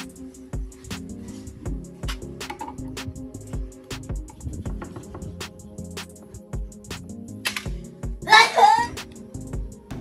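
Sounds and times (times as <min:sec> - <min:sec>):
steady drum beat: 0:00.0 - 0:07.2
music with held tones: 0:00.0 - 0:10.0.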